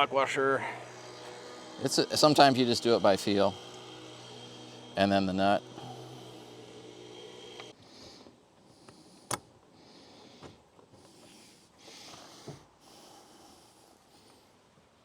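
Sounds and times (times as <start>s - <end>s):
faint breathing: 0.5s - 1.4s, 5.7s - 6.8s, 7.8s - 14.8s.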